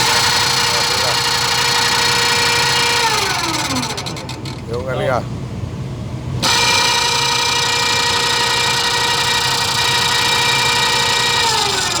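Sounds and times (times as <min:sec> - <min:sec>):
winch motor whining: 0:00.0 - 0:05.4, 0:06.4 - 0:12.0.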